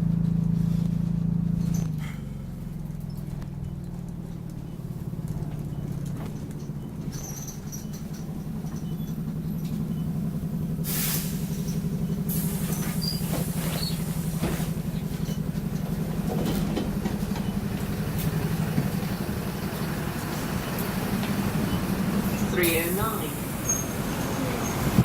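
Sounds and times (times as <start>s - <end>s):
bus engine droning: 0.0s - 25.0s
short high squeaks: 6.8s - 9.2s, 12.6s - 14.0s, 23.6s - 24.9s
loud hiss of air: 10.8s - 11.7s, 12.3s - 14.8s.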